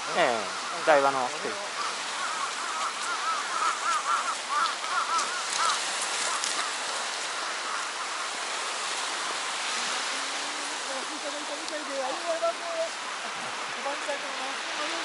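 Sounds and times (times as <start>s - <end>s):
high arching bird calls: 0.0s - 9.6s
sea surf: 0.0s - 15.0s.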